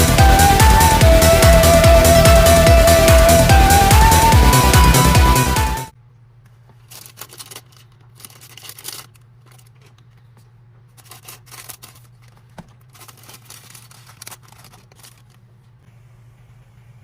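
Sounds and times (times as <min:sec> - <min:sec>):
low electrical hum: 0:05.9 - 0:17.0
packaging rustling: 0:06.6 - 0:15.8
plastic parts clicking: 0:06.7 - 0:15.8.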